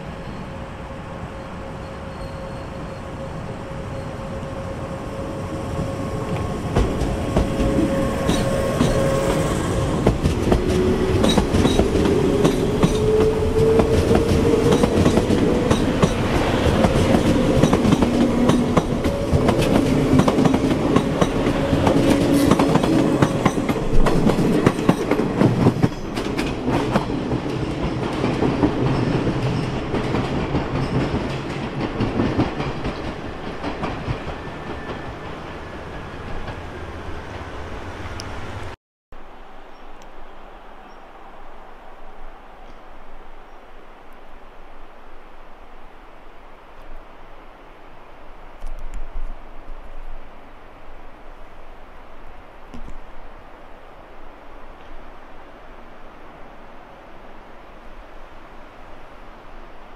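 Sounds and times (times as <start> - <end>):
train wheels clacking on rail joints: 5.7 - 36.7.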